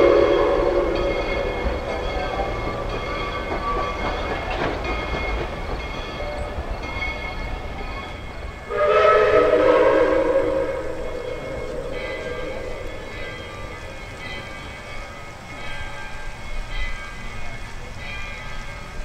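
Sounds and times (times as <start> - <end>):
steam locomotive whistle: 0.0 - 4.4, 8.6 - 14.5
low rumble of train: 0.0 - 19.0.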